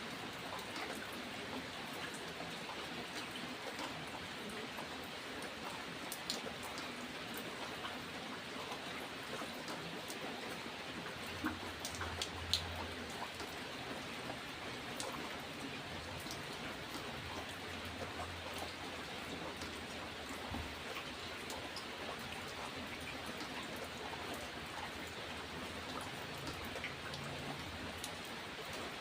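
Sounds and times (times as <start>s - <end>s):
steady rain hiss: 0.0s - 29.0s
raindrops ticking: 11.0s - 29.0s.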